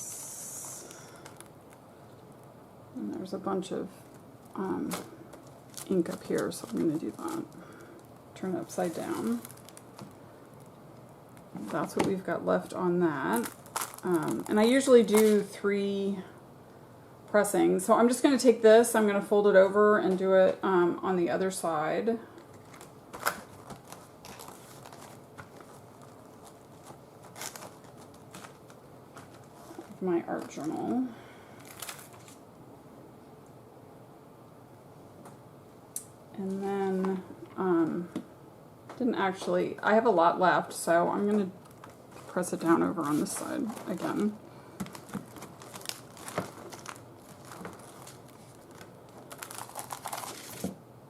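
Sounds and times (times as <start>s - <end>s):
paper crinkling and rustling: 4.8s - 12.2s, 13.2s - 15.5s, 22.4s - 30.9s, 31.6s - 32.4s, 41.6s - 50.8s
paper rustling and tapping: 22.5s - 30.6s, 44.8s - 50.8s.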